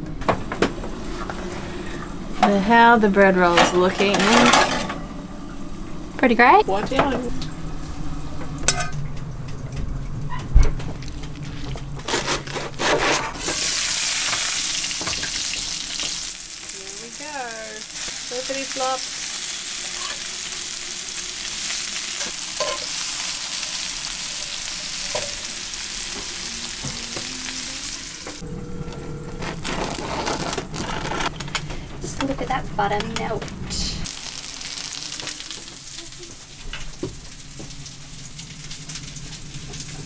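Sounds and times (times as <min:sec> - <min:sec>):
patties sizzling in a pan: 0:13.5 - 0:28.4, 0:34.1 - 0:40.0.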